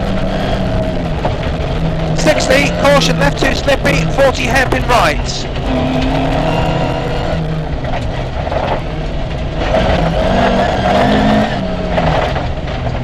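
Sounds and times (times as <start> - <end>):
car engine revving: 0.0 - 13.0
tyre and stone noise: 2.2 - 5.5.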